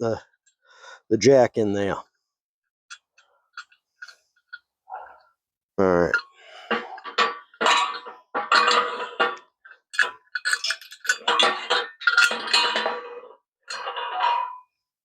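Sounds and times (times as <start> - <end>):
metal tools clanking: 6.0 - 14.6.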